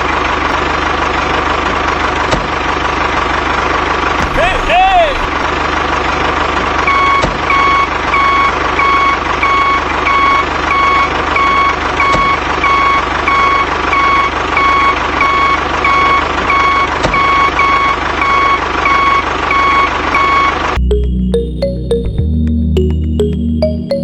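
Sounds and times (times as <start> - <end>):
engine hum: 0.0 - 6.8
reversing alarm beeping: 4.2 - 5.4, 6.9 - 24.0.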